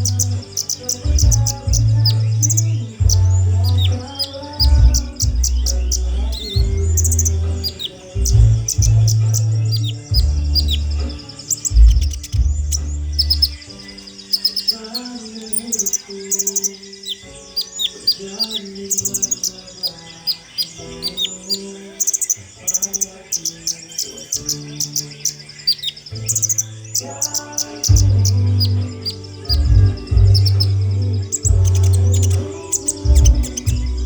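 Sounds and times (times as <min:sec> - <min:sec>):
bird chirping and trilling: 0:00.0 - 0:34.0
music with held low notes: 0:00.0 - 0:34.0.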